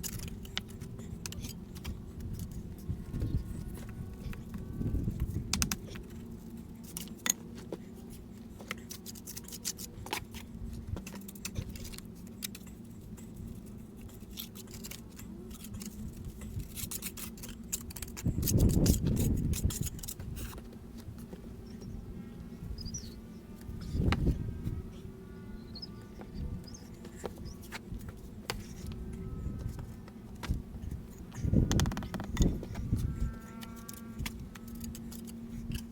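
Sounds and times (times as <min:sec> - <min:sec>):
steady low hum: 0:00.0 - 0:35.9
stone and tools knocking: 0:31.7 - 0:32.6.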